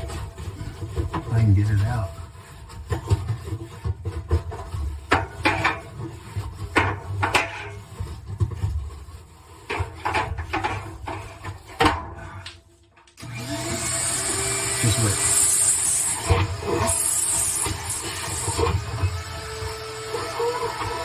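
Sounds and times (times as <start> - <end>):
tools clattering and scraping: 0.0 - 13.2.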